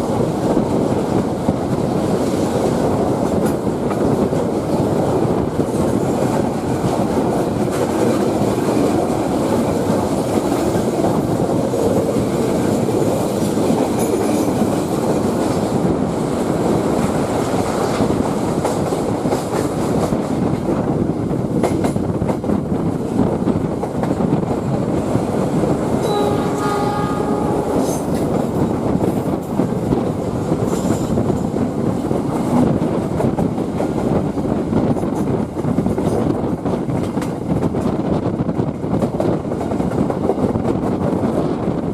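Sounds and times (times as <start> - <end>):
train wheels rumbling on track: 0.0 - 41.9
train horn: 26.0 - 28.2.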